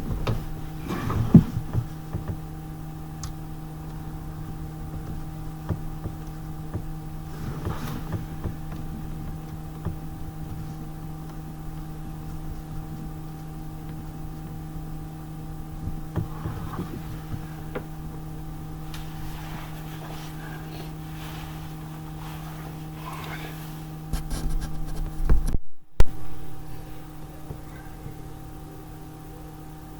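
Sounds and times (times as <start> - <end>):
light clicks and knocks: 0.0 - 13.2, 15.8 - 21.1
steady low hum: 0.0 - 29.9.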